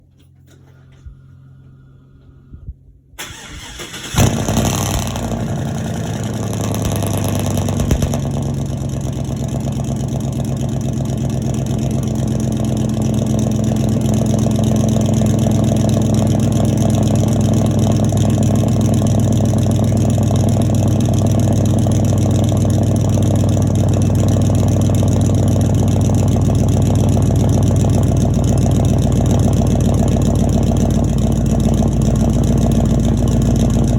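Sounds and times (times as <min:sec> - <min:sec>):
engine cranking: 0:03.2 - 0:05.5
engine bang: 0:03.2 - 0:10.4
loud engine idling: 0:03.2 - 0:33.9.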